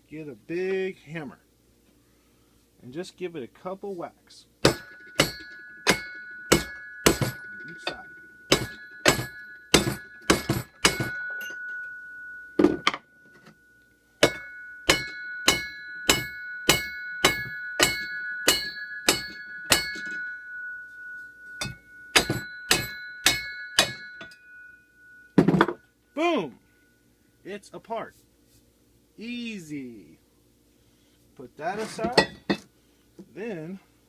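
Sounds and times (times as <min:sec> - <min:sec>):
hammer striking steel shaft: 0:04.6 - 0:25.8
metal shaft ringing: 0:04.6 - 0:27.3.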